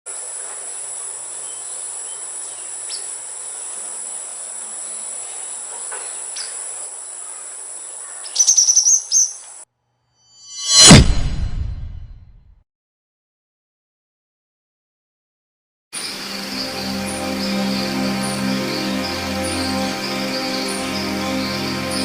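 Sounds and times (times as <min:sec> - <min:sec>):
insect drone: 0:00.1 - 0:08.6, 0:16.0 - 0:22.0
bird chirps: 0:08.1 - 0:09.6
high bird notes: 0:16.0 - 0:22.0.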